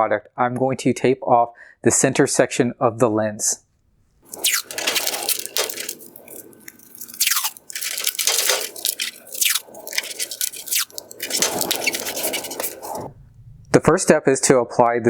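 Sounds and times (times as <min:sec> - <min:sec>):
tape ripping off roll: 0:04.3 - 0:13.1
tape screech: 0:04.3 - 0:13.1.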